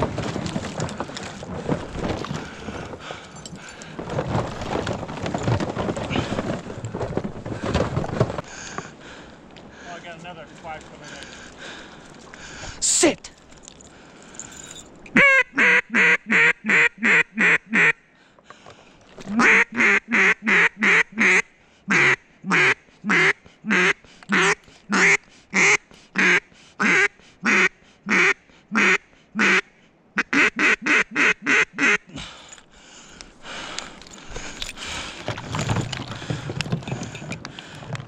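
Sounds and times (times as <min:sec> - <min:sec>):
duck call quacks: 0:15.2 - 0:18.0, 0:19.4 - 0:32.1.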